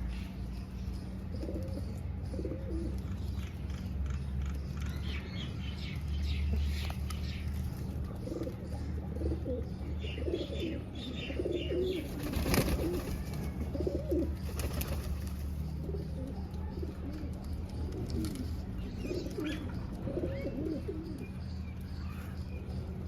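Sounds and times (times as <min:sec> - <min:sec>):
pigeons cooing: 0:01.3 - 0:03.0, 0:06.5 - 0:21.3.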